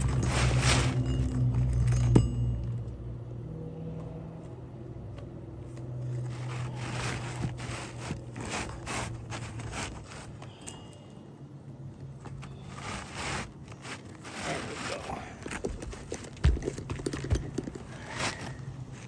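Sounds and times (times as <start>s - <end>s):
shingle scraping and tearing: 0.0s - 2.1s, 6.0s - 10.9s, 12.2s - 19.0s.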